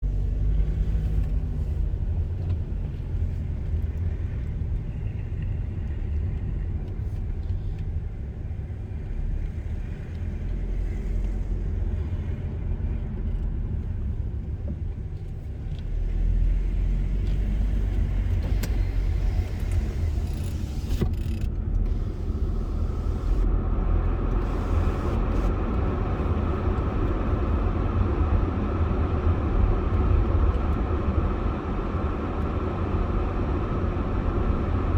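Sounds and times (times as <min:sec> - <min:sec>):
car road rumble: 0:00.0 - 0:34.9.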